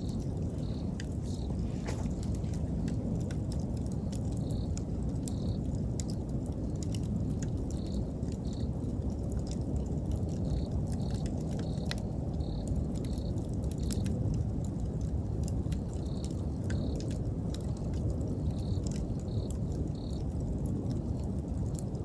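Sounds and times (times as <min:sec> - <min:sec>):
insect chirping: 0:00.0 - 0:03.0, 0:04.0 - 0:05.6, 0:07.7 - 0:08.8, 0:10.4 - 0:14.0, 0:16.1 - 0:17.0, 0:18.5 - 0:20.2
campfire crackling and popping: 0:00.0 - 0:22.0.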